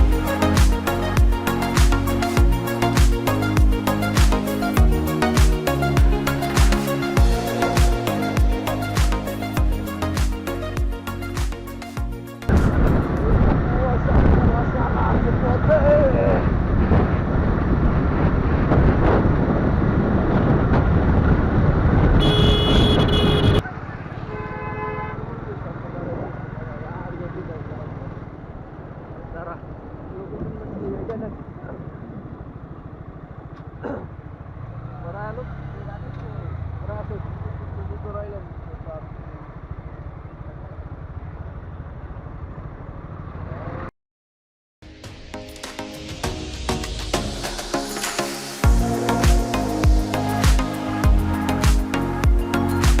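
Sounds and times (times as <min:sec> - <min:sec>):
background music with beat: 0:00.0 - 0:12.5, 0:44.8 - 0:53.0
motorcycle road noise: 0:12.4 - 0:43.9
wind rush on microphone: 0:12.5 - 0:23.6
vehicle horn: 0:22.2 - 0:23.6, 0:24.2 - 0:25.3.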